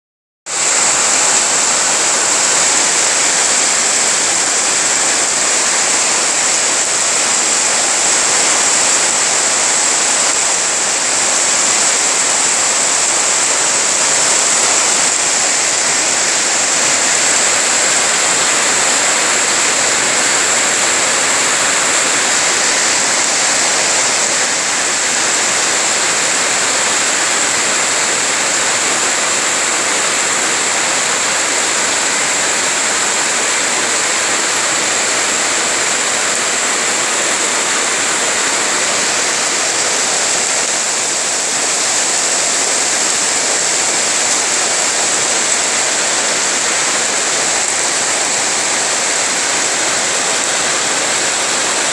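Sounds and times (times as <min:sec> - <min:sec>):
heavy rain falling: 0:00.5 - 0:51.9.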